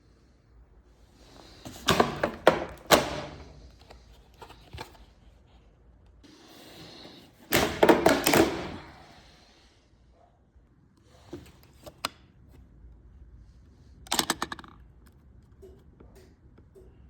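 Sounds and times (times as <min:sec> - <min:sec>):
hard objects knocking and clattering: 0:01.7 - 0:03.5.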